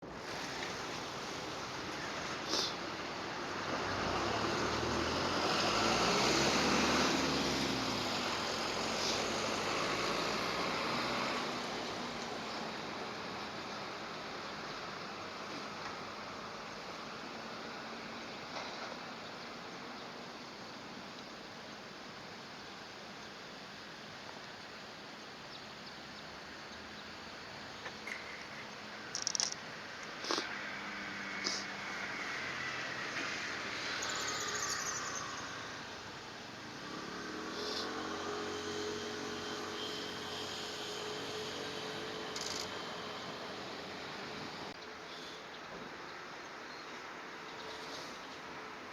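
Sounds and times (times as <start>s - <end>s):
outdoor background noise: 0.0s - 48.9s
distant engine passing by: 0.3s - 14.4s, 30.1s - 44.8s.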